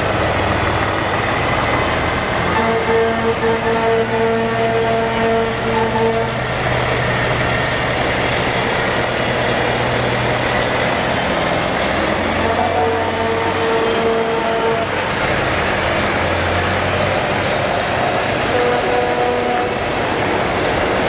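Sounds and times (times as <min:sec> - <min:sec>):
heavy truck engines rolling past: 0:00.0 - 0:21.0
truck air horn blast: 0:02.4 - 0:06.8, 0:12.2 - 0:15.4, 0:16.9 - 0:20.0.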